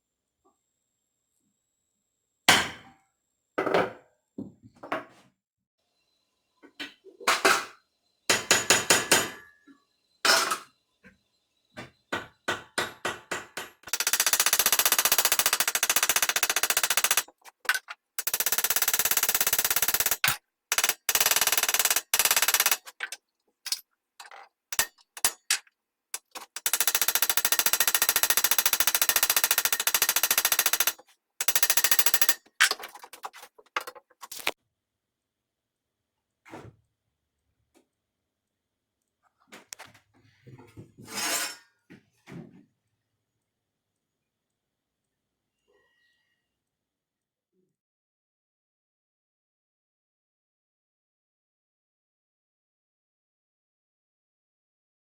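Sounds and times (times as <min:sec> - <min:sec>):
rapid repeated metal strikes: 0:12.5 - 0:25.6, 0:26.2 - 0:34.6.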